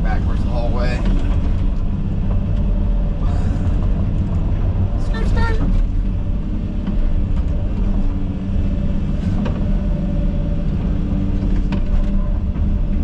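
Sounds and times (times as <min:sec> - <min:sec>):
excavator diesel engine rumbling: 0:00.0 - 0:13.0
steady hum: 0:00.0 - 0:13.0.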